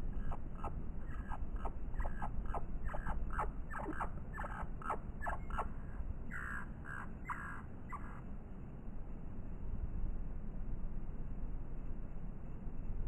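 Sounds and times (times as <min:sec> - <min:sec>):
bird chirping: 0:00.0 - 0:08.2
low steady rumble: 0:00.0 - 0:13.0.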